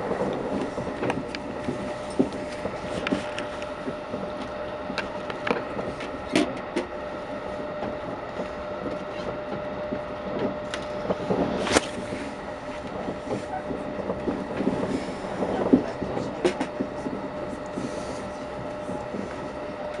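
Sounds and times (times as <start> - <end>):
train rumble inside carriage: 0.0 - 20.0.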